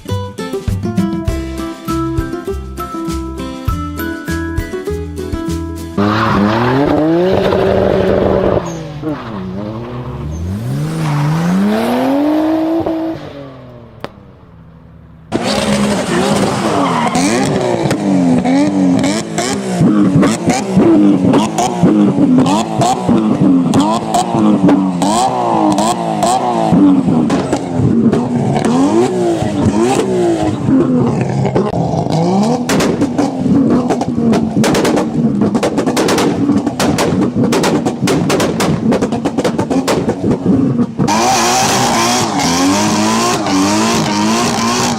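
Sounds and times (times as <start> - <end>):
car engine revving: 6.0 - 44.9
exhaust cracks and pops: 15.3 - 41.8.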